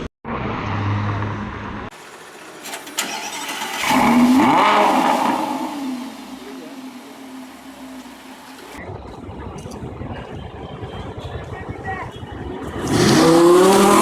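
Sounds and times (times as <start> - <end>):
car engine revving driving by: 0.3 - 8.8, 12.8 - 14.0.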